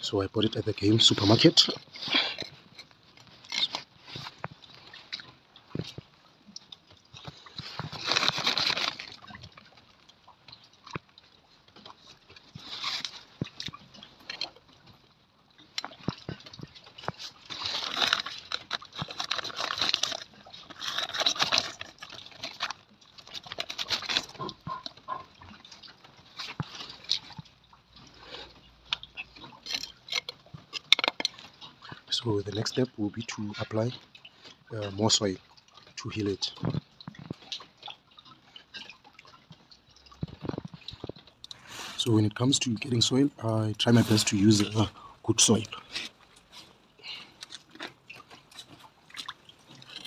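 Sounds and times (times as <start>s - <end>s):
compost rustling by hand: 41.6s - 47.4s.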